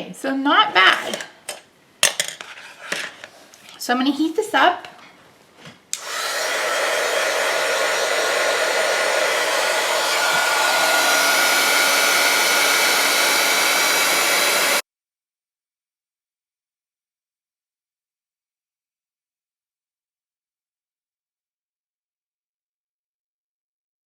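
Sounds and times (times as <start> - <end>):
heat gun blowing with faint whine: 5.9 - 14.8.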